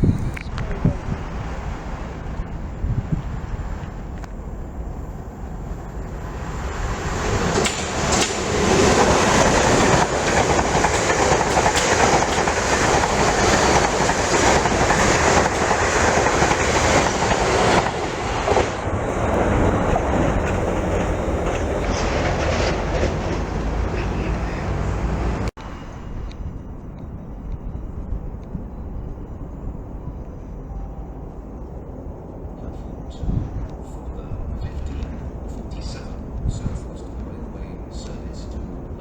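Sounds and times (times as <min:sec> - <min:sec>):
train wheels clicking over rails: 0:06.2 - 0:25.8.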